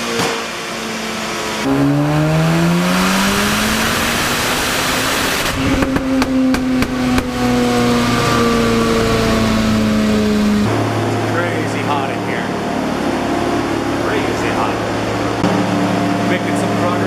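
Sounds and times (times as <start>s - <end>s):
rotary engine revving: 0.9s - 11.4s
exhaust cracks: 1.6s - 12.5s.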